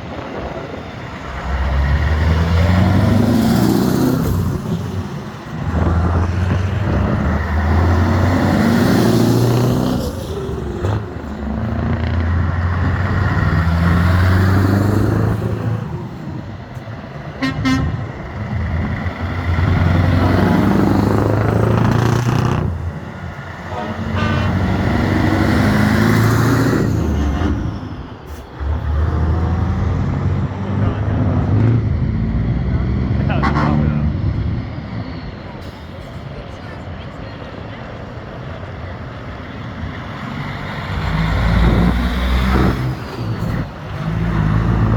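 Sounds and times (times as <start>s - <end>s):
trucks driving past: 0.0s - 44.9s
short horn toot: 23.7s - 24.6s.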